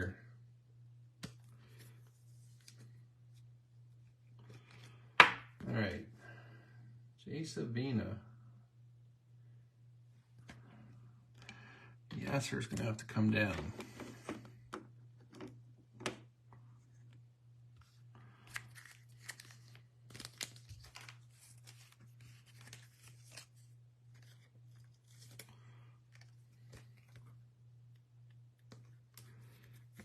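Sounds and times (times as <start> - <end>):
low electrical hum: 0.0 - 30.0
cards rustling and clicking: 17.8 - 30.0
foil wrappers tearing and crinkling: 18.5 - 23.5.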